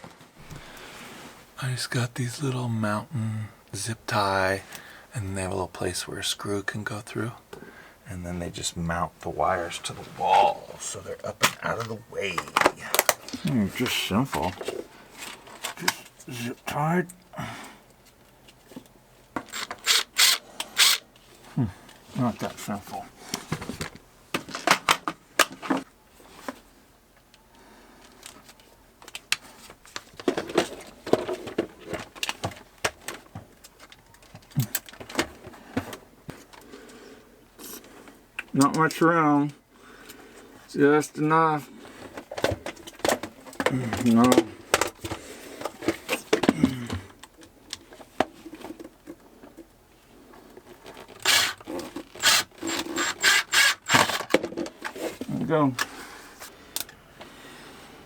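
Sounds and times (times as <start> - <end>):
tools and plastic fittings clattering: 19.4 - 21.0, 50.5 - 55.9
tool clicks: 19.5 - 21.0, 51.2 - 51.6.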